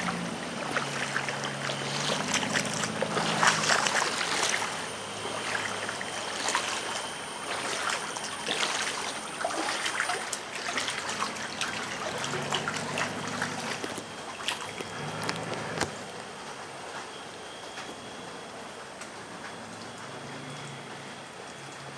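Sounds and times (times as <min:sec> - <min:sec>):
water dripping: 0:00.0 - 0:15.6
floodwater trickling and splashing: 0:00.0 - 0:21.9.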